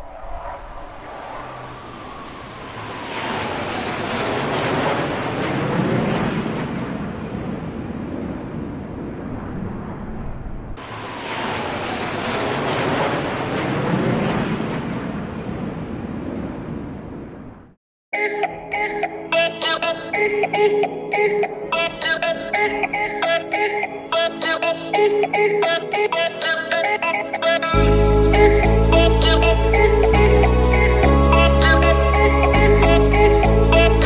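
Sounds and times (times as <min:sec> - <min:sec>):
airplane flyover rush: 0:00.0 - 0:17.7.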